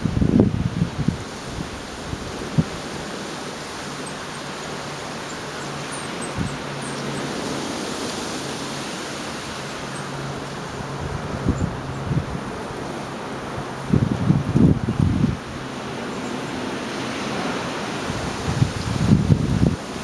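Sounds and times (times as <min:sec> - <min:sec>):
storm wind rushing: 0:00.0 - 0:03.1, 0:13.6 - 0:15.7, 0:17.3 - 0:20.0
wind gusts buffeting microphone: 0:00.0 - 0:20.0.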